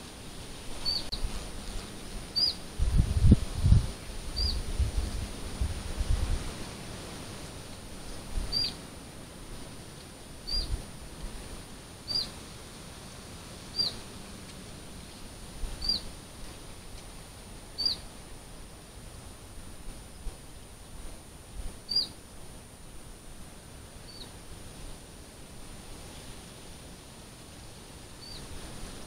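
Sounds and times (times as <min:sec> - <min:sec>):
faint outdoor background noise: 0:00.0 - 0:29.0
bird call: 0:00.8 - 0:01.2, 0:02.4 - 0:02.6, 0:08.5 - 0:08.8, 0:10.4 - 0:10.8, 0:12.1 - 0:12.4, 0:13.7 - 0:14.0, 0:15.8 - 0:16.1, 0:17.8 - 0:18.1, 0:21.9 - 0:22.2, 0:24.0 - 0:24.3, 0:28.2 - 0:28.5.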